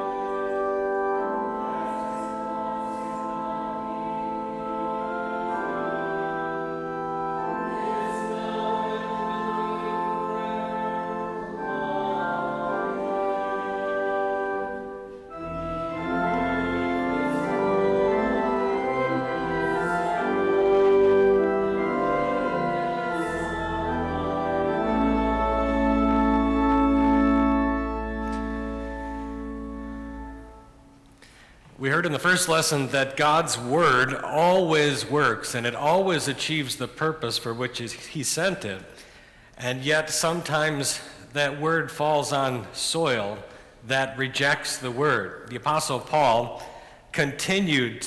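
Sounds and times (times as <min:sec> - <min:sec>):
organ playing sustained chords: 0:00.0 - 0:38.8
deep organ bass pedal notes: 0:04.2 - 0:31.0.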